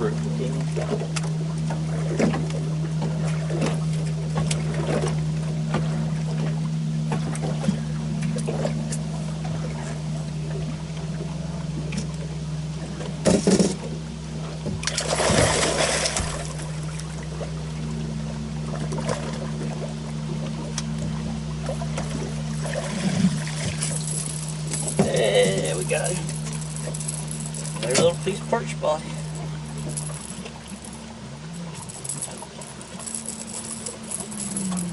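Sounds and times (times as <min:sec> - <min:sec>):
steady low hum: 0:00.0 - 0:34.9
fish splashing in water: 0:14.8 - 0:17.6.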